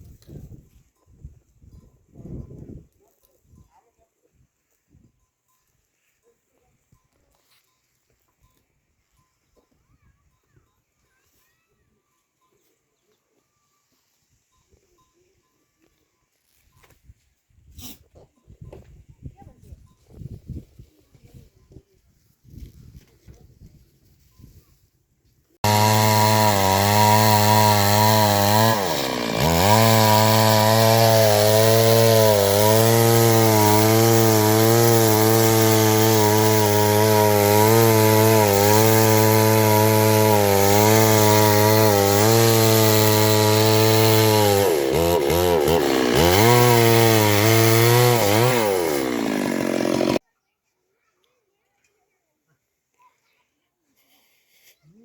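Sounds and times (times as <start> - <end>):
chainsaw running under load: 25.6 - 50.2.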